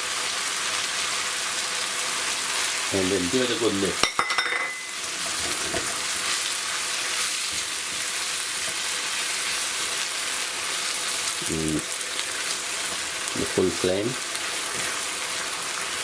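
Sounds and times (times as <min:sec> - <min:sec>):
food sizzling in a pan: 0:00.0 - 0:16.0
spoon clinking against pan: 0:04.0 - 0:05.0.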